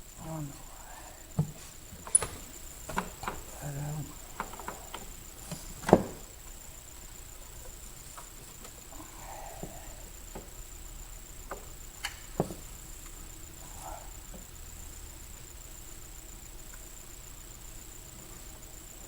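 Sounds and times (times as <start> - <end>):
plastic clicks and knocks: 2.1 - 3.5.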